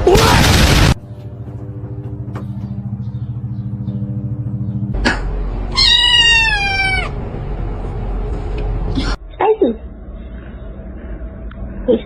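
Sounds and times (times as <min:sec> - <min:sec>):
low pulsing hum: 0:00.0 - 0:06.4, 0:07.0 - 0:12.0
cat meowing: 0:05.7 - 0:07.2.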